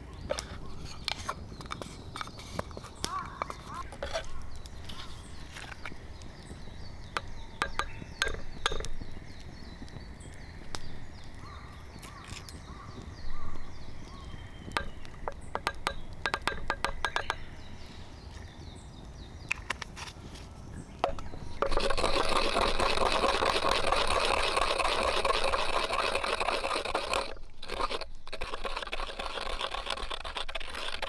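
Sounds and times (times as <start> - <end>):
campfire crackling: 0.0 - 31.0.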